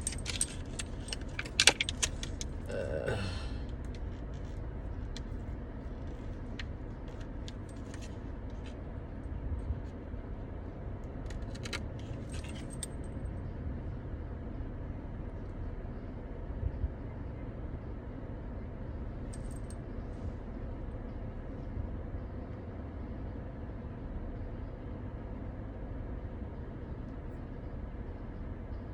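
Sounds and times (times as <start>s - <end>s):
light metallic clicks and jingles: 0.0s - 2.7s, 3.7s - 8.8s, 11.2s - 13.4s, 19.2s - 20.0s
low rumble of car: 0.0s - 28.9s.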